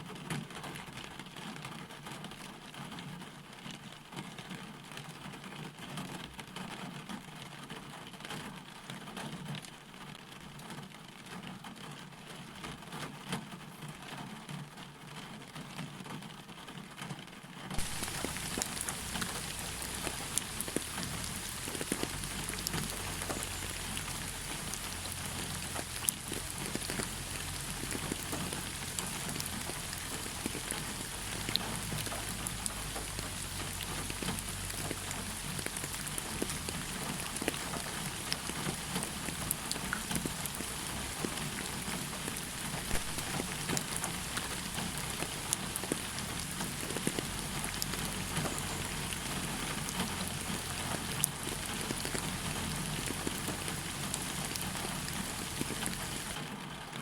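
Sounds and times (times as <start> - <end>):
rain on a hard surface: 0.0 - 57.0.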